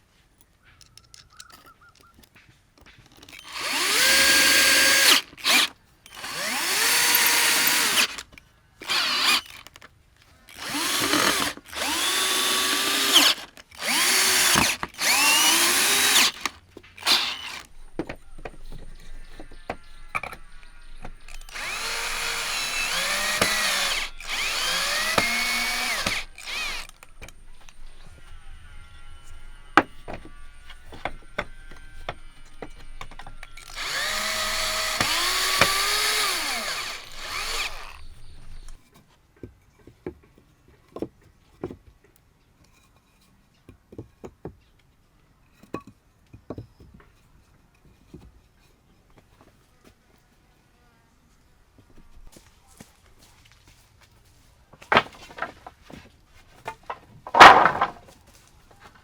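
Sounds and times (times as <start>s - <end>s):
power drill bursts: 3.4s - 9.8s, 10.5s - 28.4s, 29.0s - 38.8s, 57.3s - 58.0s.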